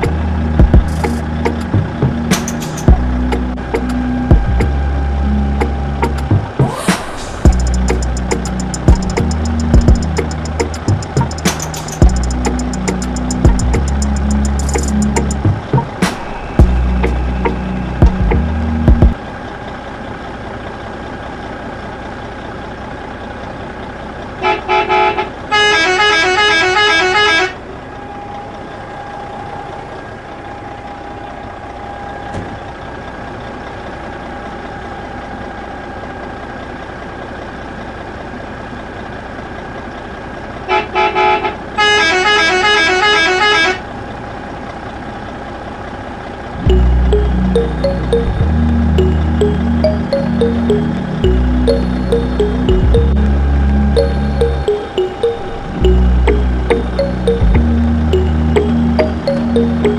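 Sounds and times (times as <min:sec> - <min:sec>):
vehicle horn pulsing tune: 0:24.4 - 0:27.6.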